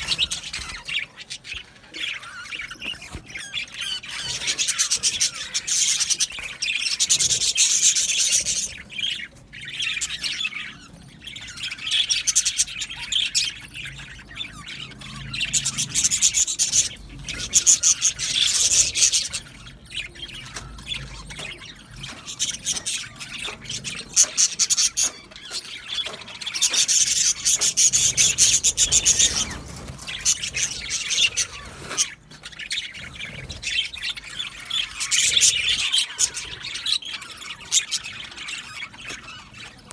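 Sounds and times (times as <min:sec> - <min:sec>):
budgerigars chattering and warbling: 0:00.0 - 0:39.9.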